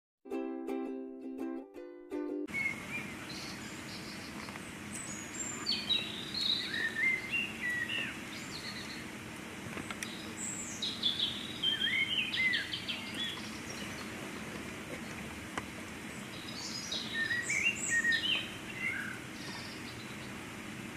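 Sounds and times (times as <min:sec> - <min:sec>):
songbirds whistling: 0:02.5 - 0:09.1, 0:09.8 - 0:15.4, 0:16.0 - 0:20.5
steady background hiss: 0:02.5 - 0:20.9.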